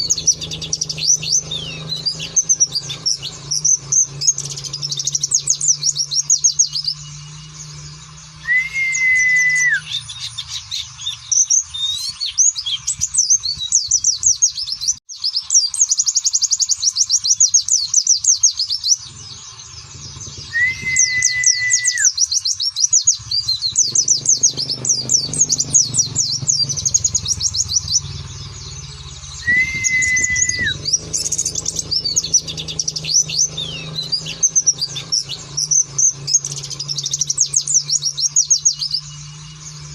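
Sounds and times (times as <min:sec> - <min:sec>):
bird twittering chirps: 0:00.0 - 0:39.9
low level whistle: 0:08.4 - 0:10.0, 0:20.5 - 0:22.1, 0:29.4 - 0:30.8.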